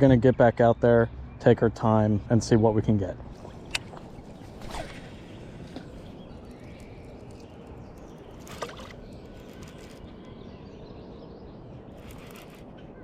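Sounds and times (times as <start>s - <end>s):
creek water flowing: 3.2s - 10.3s.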